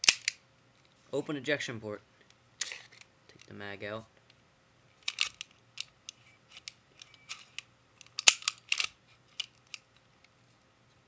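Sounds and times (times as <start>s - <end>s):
airsoft pistol metal clicks: 0.0s - 0.4s, 6.6s - 9.8s.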